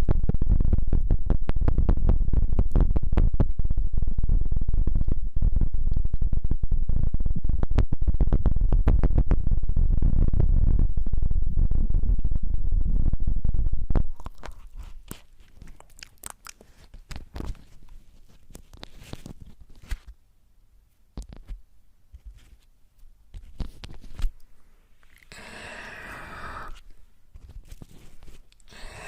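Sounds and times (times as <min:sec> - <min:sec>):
close crackling and crunching: 0:14.0 - 0:20.2, 0:23.3 - 0:29.0
hissing noise: 0:25.2 - 0:27.0, 0:28.6 - 0:29.0.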